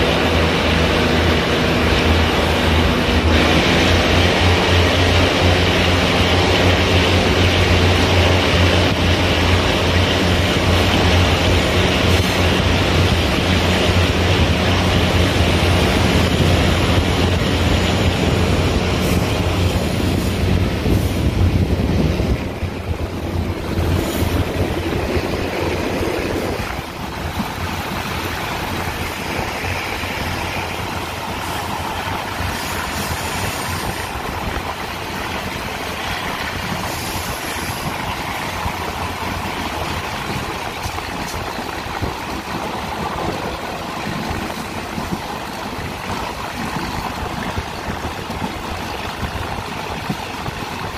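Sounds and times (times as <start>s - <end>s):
train engine drone: 0.0s - 50.9s
train wheels rushing on rail: 0.0s - 50.9s
wind rushing: 0.0s - 50.9s.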